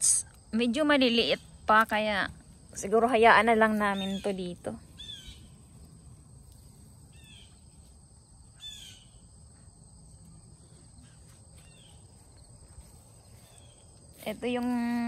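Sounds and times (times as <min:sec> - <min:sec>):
high insect drone: 0:00.0 - 0:15.0
small bird chirping: 0:03.8 - 0:05.8, 0:07.1 - 0:07.8, 0:08.6 - 0:09.3, 0:10.6 - 0:12.5, 0:13.2 - 0:13.9.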